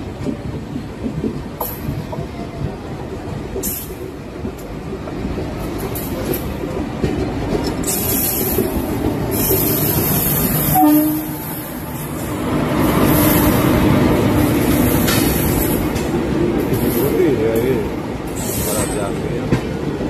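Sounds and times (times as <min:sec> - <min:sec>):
train wheels rattling on rails: 0:00.0 - 0:20.0
train horn: 0:10.7 - 0:11.7.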